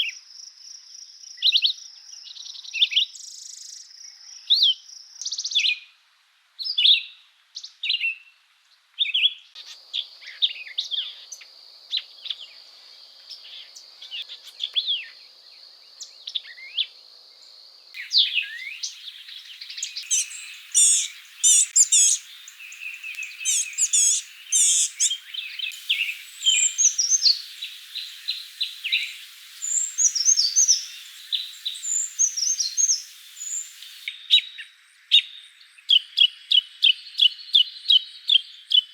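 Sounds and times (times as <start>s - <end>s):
songbirds singing and trilling: 18.0s - 34.6s.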